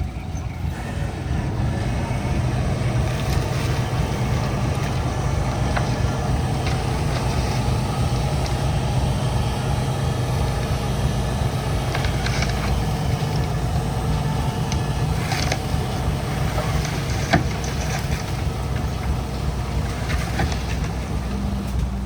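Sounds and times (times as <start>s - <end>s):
heavy diesel engine rumbling: 0.0s - 22.0s.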